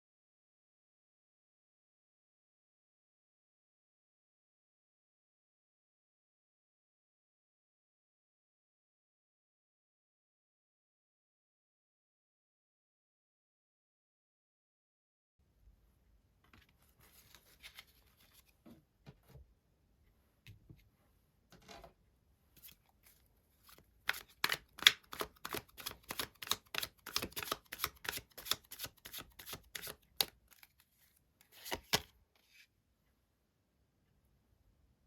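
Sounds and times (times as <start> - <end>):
cards rustling: 17.0 - 18.5, 22.6 - 32.6
cards shuffling clicks: 23.7 - 30.8, 31.4 - 32.1.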